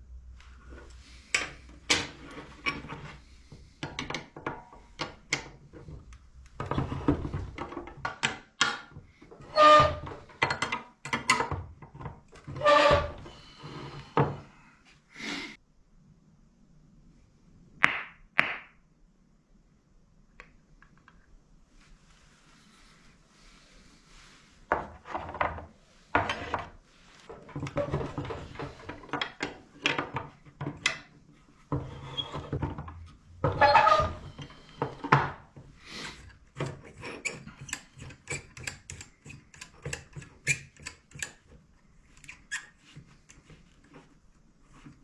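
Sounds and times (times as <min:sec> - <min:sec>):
tools scraping and clicking: 0:36.0 - 0:44.1.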